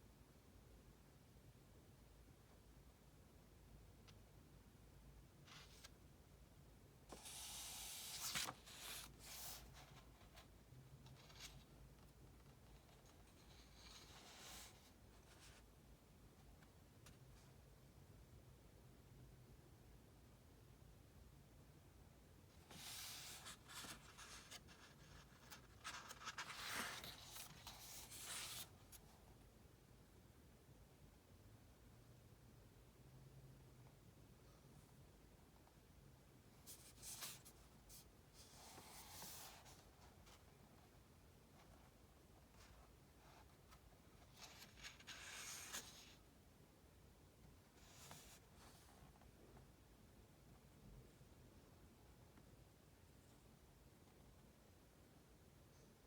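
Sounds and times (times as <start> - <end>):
soft paper rustles: 5.4 - 6.1, 7.1 - 17.6, 22.5 - 29.2, 36.5 - 46.3, 47.4 - 49.7
book page turning: 7.1 - 10.0, 22.7 - 28.7.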